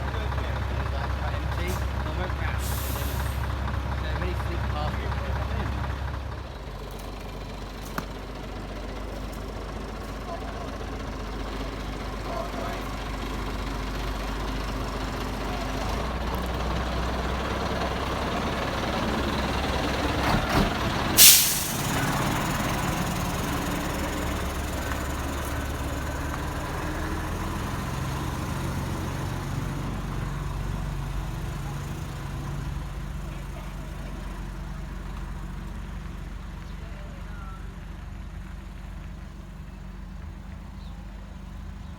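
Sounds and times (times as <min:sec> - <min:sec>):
truck engine humming: 0:00.0 - 0:41.9
air brake hiss: 0:02.6 - 0:03.4, 0:21.2 - 0:22.2.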